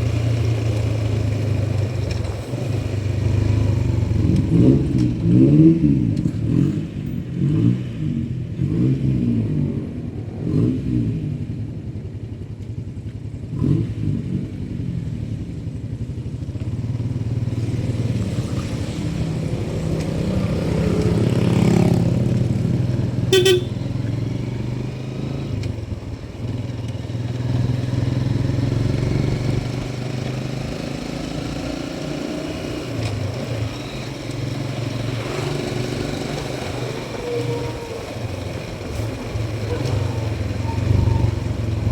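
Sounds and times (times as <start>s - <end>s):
motorcycle engine revving: 0.0s - 11.9s, 13.4s - 41.9s
short horn beep: 23.3s - 24.0s.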